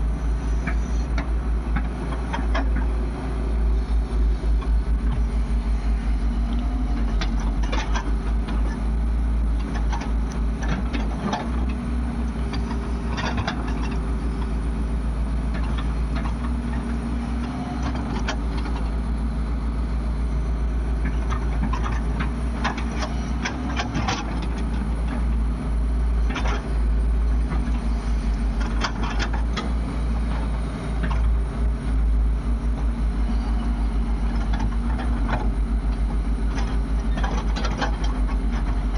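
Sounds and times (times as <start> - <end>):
diesel machinery engines rumbling: 0.0 - 38.9.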